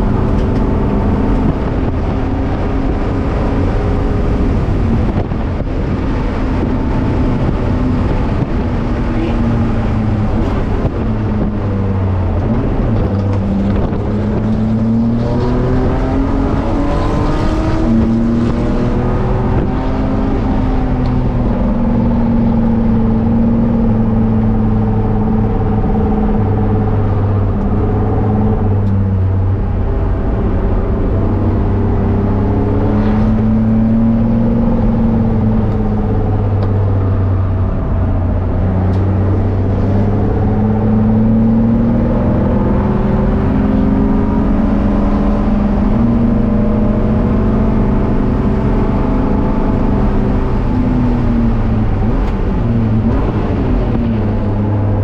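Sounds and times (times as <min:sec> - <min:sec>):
car engine at full throttle: 0:00.0 - 0:55.0
road and wind noise: 0:00.0 - 0:55.0.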